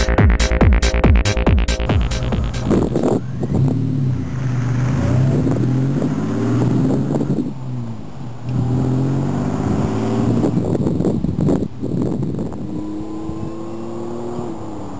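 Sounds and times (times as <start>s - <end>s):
car engine revving: 1.7s - 14.9s.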